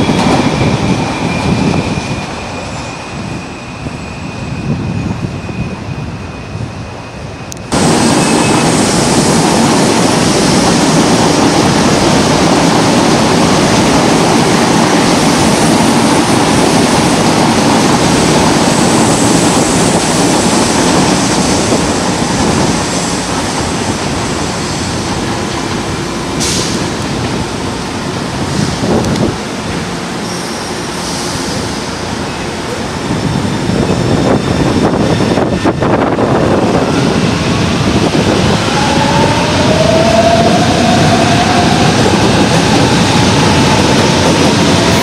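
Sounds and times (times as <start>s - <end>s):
electric train passing: 0.0s - 45.0s
brief high hiss: 26.4s - 26.9s.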